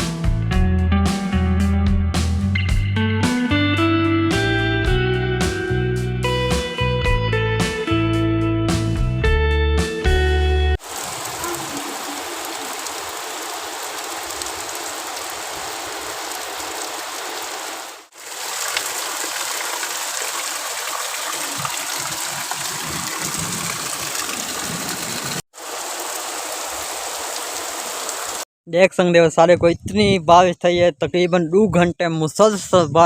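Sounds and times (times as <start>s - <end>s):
heavy rain pouring: 10.8s - 28.4s
rainwater running off: 10.8s - 28.5s.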